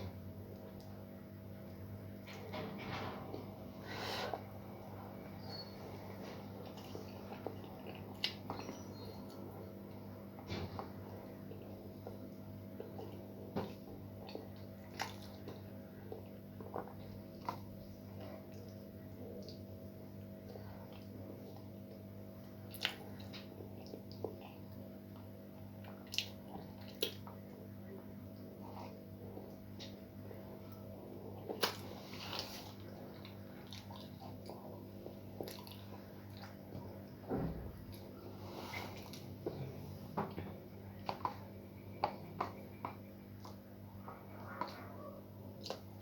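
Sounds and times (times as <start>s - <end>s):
steady low hum: 0.0s - 46.0s
person chewing: 6.4s - 9.5s, 11.5s - 19.6s, 22.6s - 27.6s, 30.7s - 36.8s, 40.9s - 46.0s.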